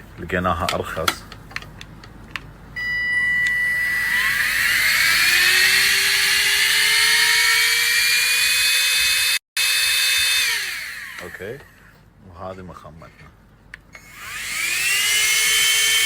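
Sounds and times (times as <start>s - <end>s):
handheld vacuum motor whine: 3.3s - 11.9s, 14.0s - 16.0s.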